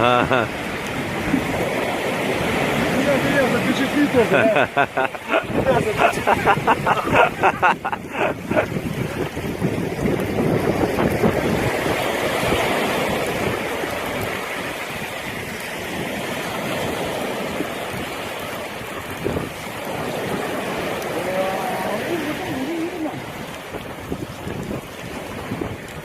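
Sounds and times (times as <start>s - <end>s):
waves washing on beach: 0.0s - 26.0s
wind on microphone: 0.0s - 26.0s.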